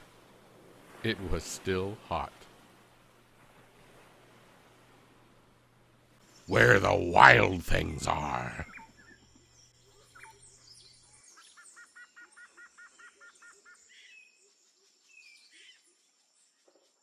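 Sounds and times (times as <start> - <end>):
faint bird chirps: 8.4 - 17.0.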